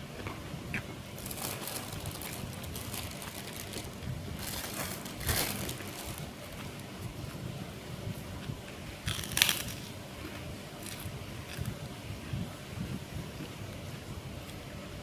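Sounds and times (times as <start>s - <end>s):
person chewing and crunching food: 0.2s - 7.4s, 8.1s - 12.4s.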